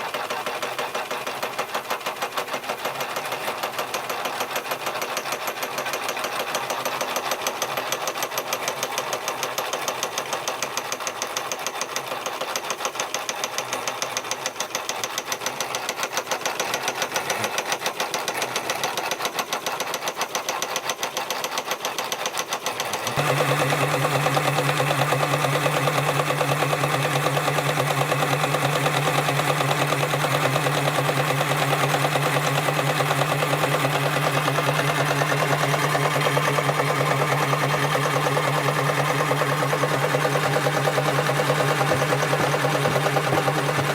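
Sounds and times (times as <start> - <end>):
toy steam engine running: 19.0 - 43.9.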